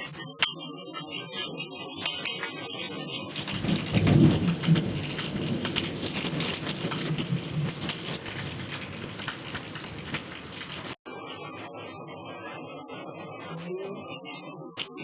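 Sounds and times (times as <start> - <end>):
heavy rain pouring: 3.3 - 11.0
thunder rumbling: 3.3 - 11.0.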